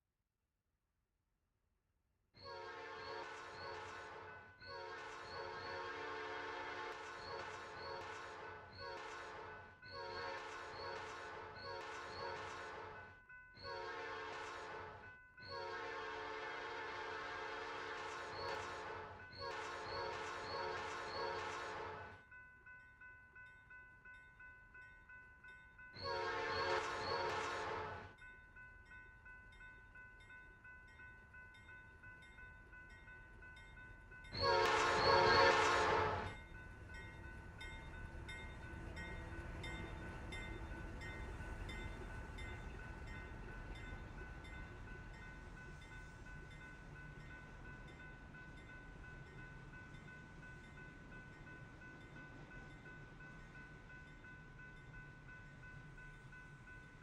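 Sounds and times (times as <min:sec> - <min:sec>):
low rumble of a train: 0:02.4 - 0:57.0
locomotive horn blasts: 0:04.7 - 0:07.0, 0:13.7 - 0:14.9, 0:15.5 - 0:18.0, 0:26.0 - 0:28.0, 0:34.4 - 0:36.4.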